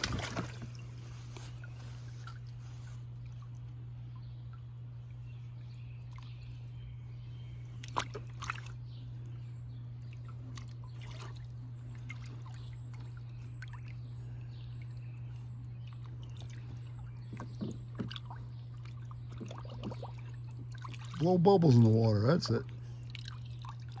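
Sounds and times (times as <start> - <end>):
water splashing in wading pool: 0.0 - 3.7, 7.8 - 8.8, 10.1 - 14.1, 15.9 - 21.8, 23.0 - 24.0
steady low hum: 0.0 - 24.0.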